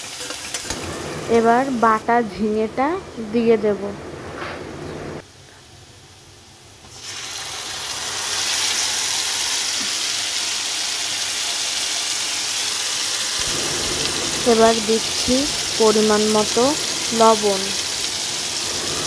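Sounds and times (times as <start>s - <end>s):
paste sizzling in hot oil: 0.0s - 2.0s, 6.9s - 19.0s.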